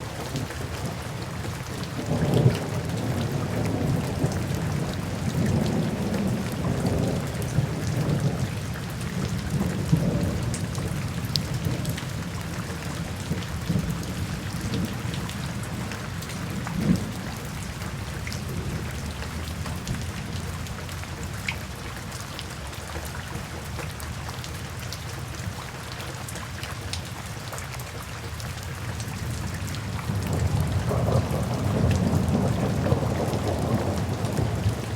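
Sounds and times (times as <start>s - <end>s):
rain drop ticks: 0.0s - 34.9s
steady rain falling: 0.0s - 34.9s
low thunder rumbles: 1.6s - 20.8s, 29.2s - 34.9s.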